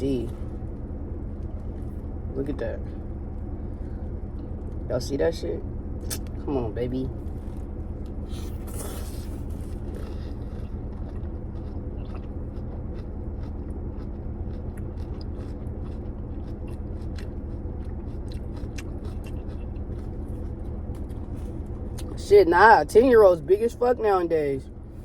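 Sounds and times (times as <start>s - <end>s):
steady low hum: 0.0s - 25.0s
person chewing food: 7.2s - 22.2s.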